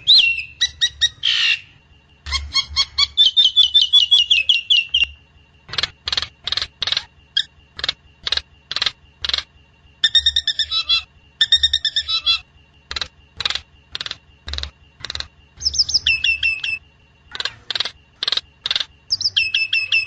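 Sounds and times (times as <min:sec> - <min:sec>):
myna calling: 0:05.7 - 0:20.0.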